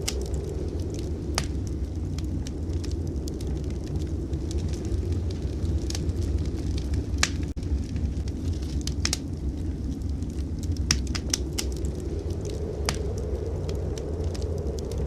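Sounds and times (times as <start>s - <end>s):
steady low rumble: 0.0s - 15.0s
wood fire crackling: 0.0s - 15.0s.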